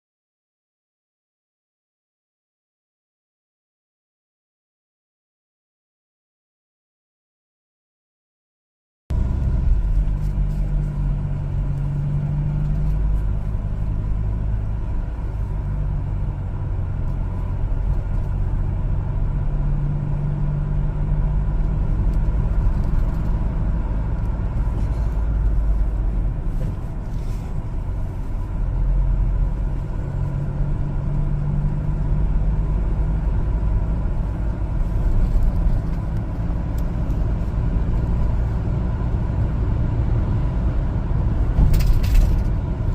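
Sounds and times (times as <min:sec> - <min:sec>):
truck engine and road rumble: 0:09.1 - 0:42.9.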